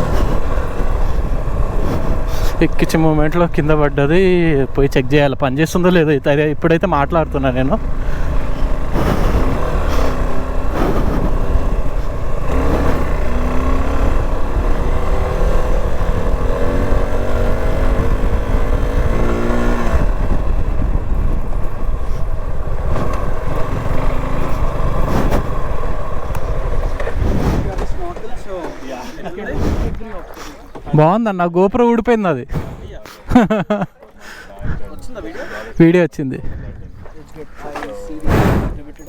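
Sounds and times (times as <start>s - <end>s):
heavy low rumble: 0.0s - 31.0s, 36.7s - 39.0s
motorcycle engine accelerating: 0.0s - 31.0s.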